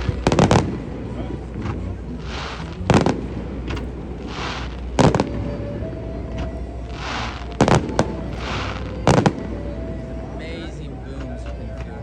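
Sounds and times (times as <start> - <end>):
fireworks booming: 0.0 - 9.8
firework rushing hiss: 2.2 - 3.4, 4.1 - 5.4, 6.9 - 9.3.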